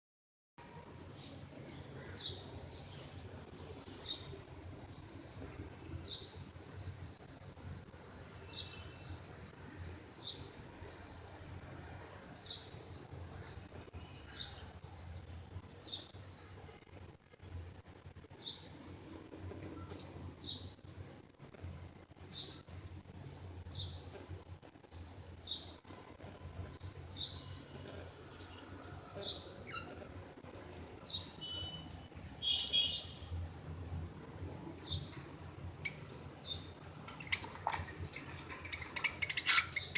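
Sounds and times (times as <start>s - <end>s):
low steady hum: 0.6s - 39.9s
budgerigars chirping: 29.5s - 30.0s, 35.7s - 39.9s.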